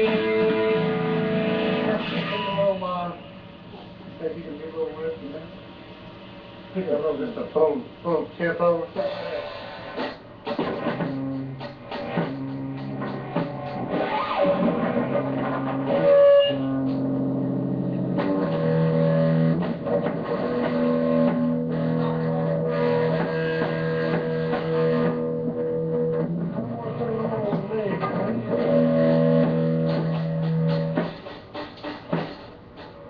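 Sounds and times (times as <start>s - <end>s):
bass guitar: 0.0s - 2.9s, 9.0s - 33.0s
electric guitar chords: 0.0s - 3.6s, 9.0s - 33.0s
drums: 0.0s - 33.0s.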